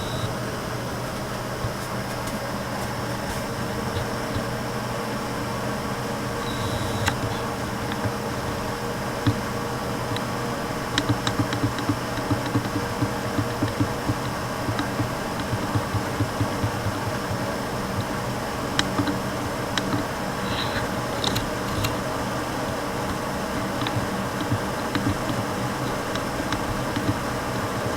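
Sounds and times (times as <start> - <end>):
ventilation fan humming: 0.0 - 27.9.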